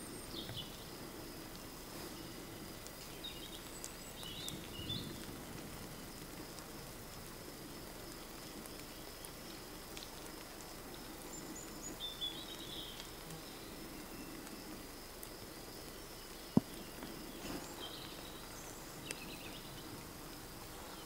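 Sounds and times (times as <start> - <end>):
small birds chirping: 0.0 - 6.5, 7.6 - 21.0
soft background noise: 0.0 - 21.0.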